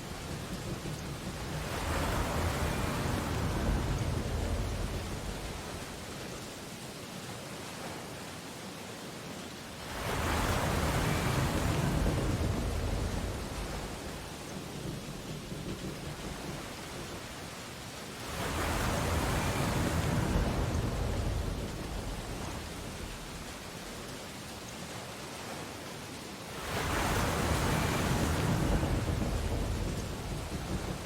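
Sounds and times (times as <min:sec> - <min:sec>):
sea waves breaking on beach: 0:00.0 - 0:31.0.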